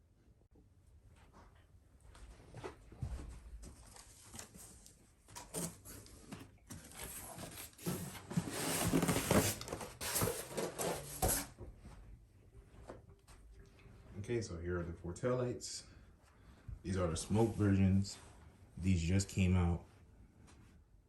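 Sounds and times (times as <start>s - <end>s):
packaging rustling and crinkling: 3.8s - 11.5s.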